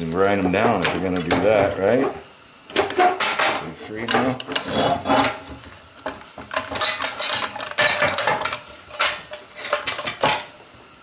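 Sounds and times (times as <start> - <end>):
metal parts clinking and scraping: 2.7 - 5.4, 6.5 - 10.6.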